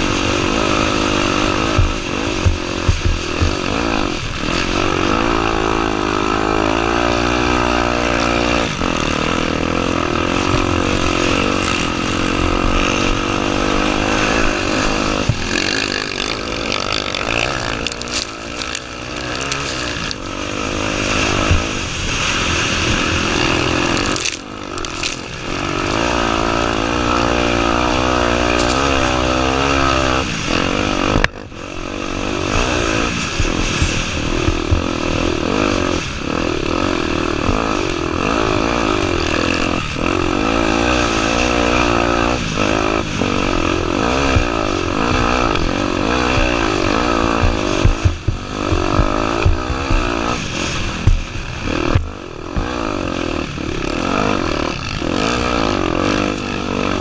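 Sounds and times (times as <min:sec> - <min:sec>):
motorcycle engine revving: 0:00.0 - 0:57.0
bike knocking and clattering: 0:01.7 - 0:04.8, 0:14.6 - 0:20.4, 0:51.0 - 0:53.0.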